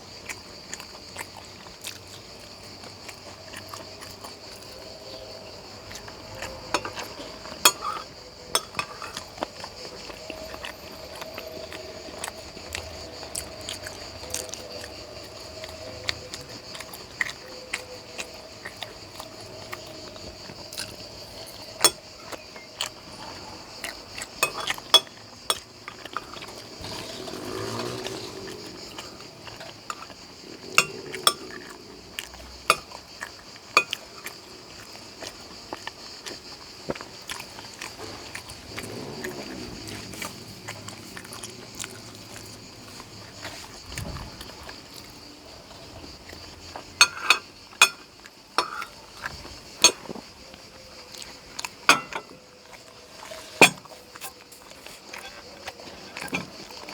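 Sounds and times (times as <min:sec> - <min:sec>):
cutlery clinking on a plate: 0:06.7 - 0:09.3, 0:24.4 - 0:26.2, 0:30.8 - 0:31.7, 0:32.7 - 0:32.9, 0:33.8 - 0:34.1, 0:47.0 - 0:49.0, 0:51.8 - 0:52.4, 0:53.6 - 0:53.9.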